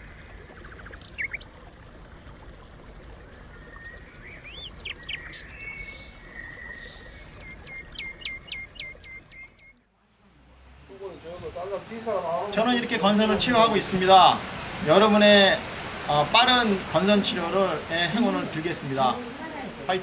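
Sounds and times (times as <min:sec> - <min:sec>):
small birds chirping: 0:00.0 - 0:01.8, 0:03.0 - 0:09.8.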